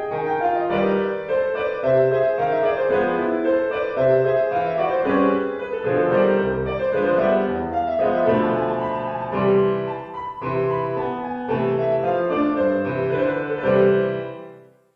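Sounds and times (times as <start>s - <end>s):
piano background music: 0.0s - 14.9s.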